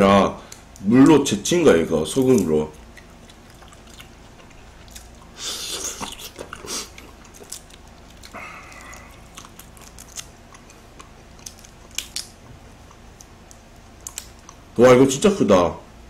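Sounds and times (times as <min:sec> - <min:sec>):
chewing and crunching shrimp: 0:02.0 - 0:14.8
shrimp shells being peeled: 0:04.9 - 0:14.6.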